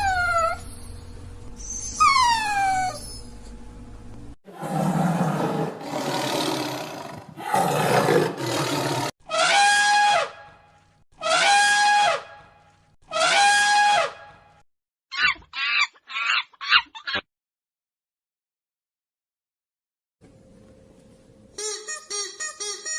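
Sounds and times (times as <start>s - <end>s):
rough rasping animal roars: 4.5s - 9.1s
pitched animal calls: 15.1s - 17.2s.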